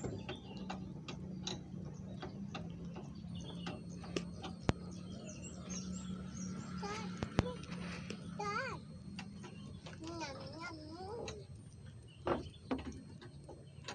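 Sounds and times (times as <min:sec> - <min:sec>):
light clicks and taps: 0:00.0 - 0:05.0
steady low hum: 0:00.0 - 0:13.9
faint chirps: 0:03.1 - 0:13.9.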